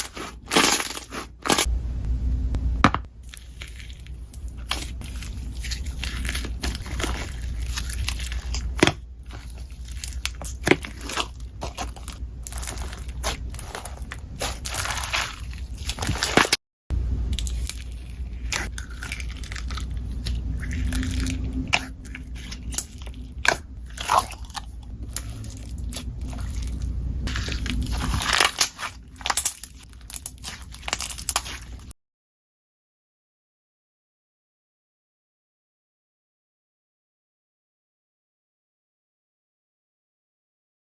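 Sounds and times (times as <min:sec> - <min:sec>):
slime crackling and popping: 0:00.0 - 0:01.7, 0:03.2 - 0:16.6, 0:17.3 - 0:31.9
low rumble: 0:01.6 - 0:31.9.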